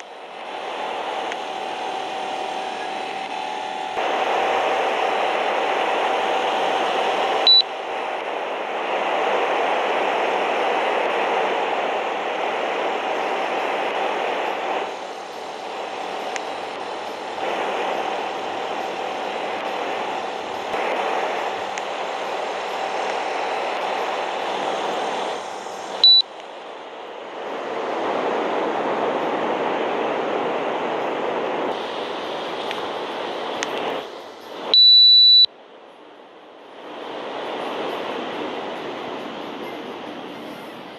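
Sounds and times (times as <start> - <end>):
air conditioner fan running: 0.0 - 40.0
short high beep: 34.8 - 35.5.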